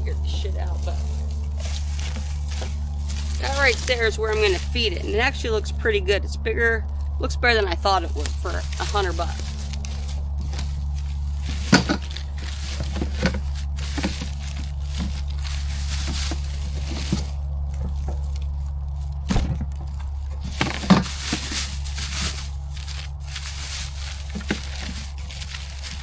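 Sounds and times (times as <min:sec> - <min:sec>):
packing material crinkling: 0:00.0 - 0:05.8, 0:07.8 - 0:26.0
steady low hum: 0:00.0 - 0:26.0
cardboard box being pulled open: 0:08.6 - 0:18.3, 0:19.2 - 0:26.0.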